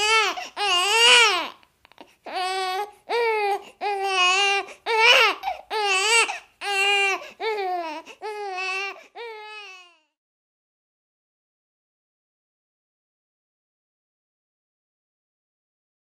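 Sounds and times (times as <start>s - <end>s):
high-pitched crying wails: 0.0s - 1.6s, 2.3s - 10.1s.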